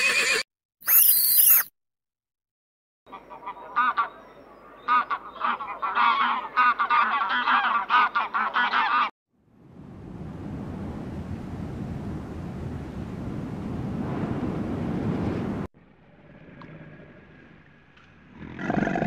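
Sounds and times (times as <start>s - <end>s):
flock of birds honking: 4.9s - 9.1s.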